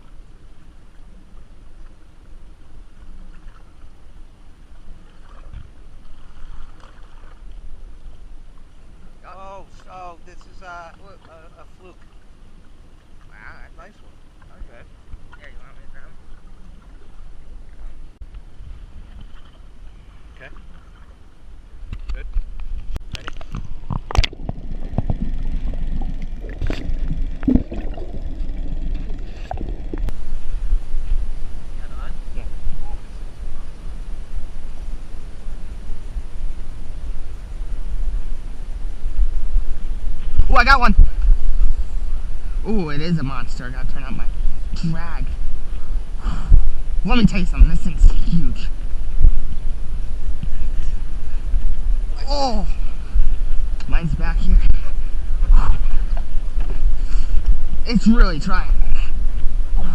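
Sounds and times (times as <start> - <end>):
faint water sounds: 0.0 - 59.9
water sloshing: 2.9 - 8.9, 18.8 - 37.4
wind rumble on microphone: 10.2 - 59.9.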